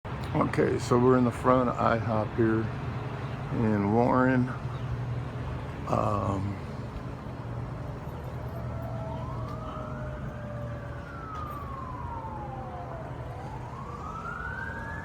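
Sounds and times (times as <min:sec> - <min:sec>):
low traffic rumble: 0:00.1 - 0:15.0
emergency siren wailing: 0:05.8 - 0:15.0.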